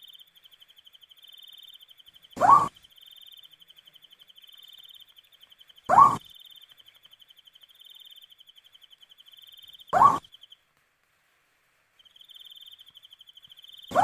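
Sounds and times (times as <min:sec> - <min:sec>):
owl calling: 0:02.4 - 0:02.8, 0:05.9 - 0:06.3, 0:09.9 - 0:10.4.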